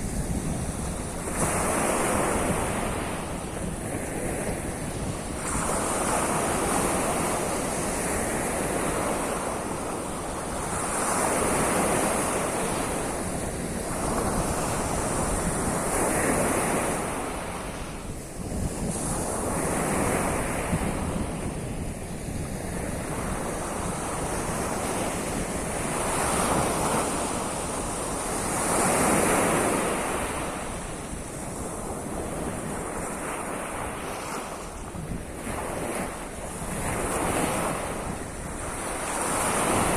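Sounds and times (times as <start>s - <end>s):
surf breaking on shore: 0.0s - 39.9s
wind rumbling on microphone: 0.0s - 39.9s.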